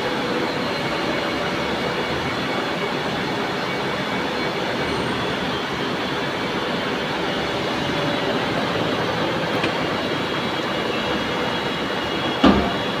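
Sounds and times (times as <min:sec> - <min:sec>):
workshop machinery running: 0:00.0 - 0:13.0.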